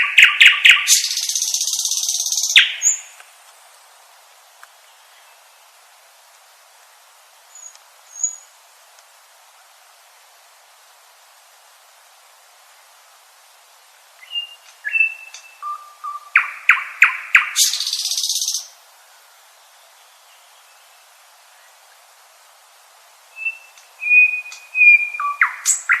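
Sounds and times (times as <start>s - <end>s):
nightingale singing: 0.0s - 5.9s, 7.5s - 8.6s, 14.2s - 22.0s, 23.2s - 26.0s.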